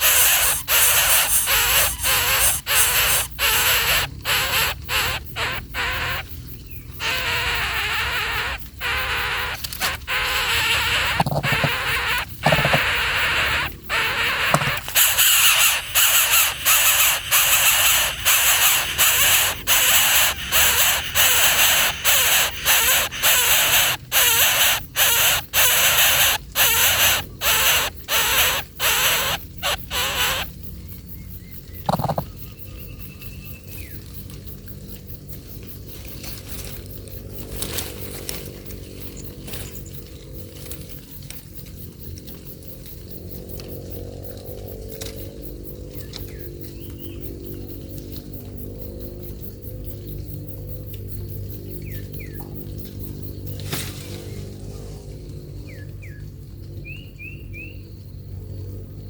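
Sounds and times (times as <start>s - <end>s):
baby birds hissing calls: 0.0s - 6.4s, 7.0s - 30.5s.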